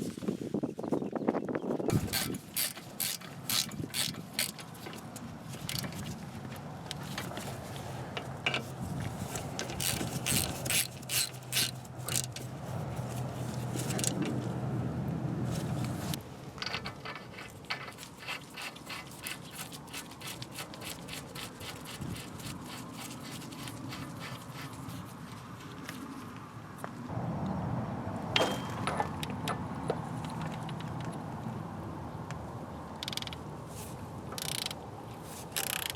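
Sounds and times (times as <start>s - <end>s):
ratchet wrench clicking: 1.9s - 4.6s, 9.8s - 12.3s, 34.4s - 34.8s, 35.6s - 35.9s.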